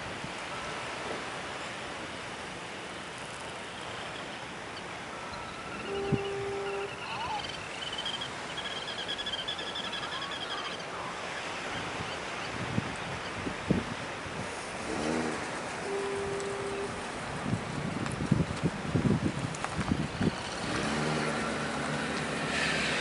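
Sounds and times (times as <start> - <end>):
surf: 0.0 - 23.0
wind: 0.0 - 23.0
high chirping trills: 3.4 - 11.0.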